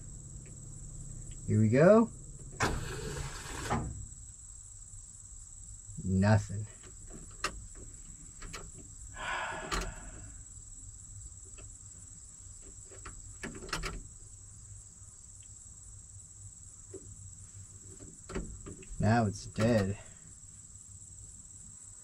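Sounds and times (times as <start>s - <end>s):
insects trilling: 0.0s - 22.0s
faint clicks and knocks: 6.8s - 8.9s.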